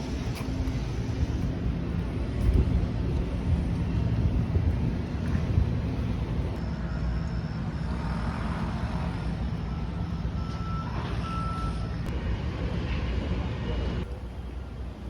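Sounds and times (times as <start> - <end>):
heavy vehicle engine rumbling: 0.0 - 15.0
reversing alarm beeps: 6.8 - 8.1, 9.6 - 12.1.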